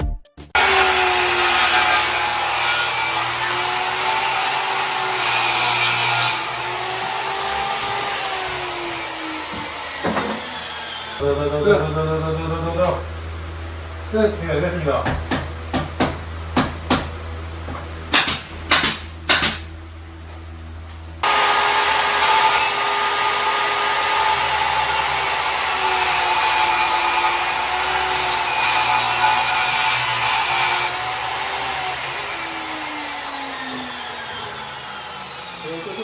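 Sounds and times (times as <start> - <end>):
power tool motor whirring: 0.6 - 11.3, 21.2 - 36.0.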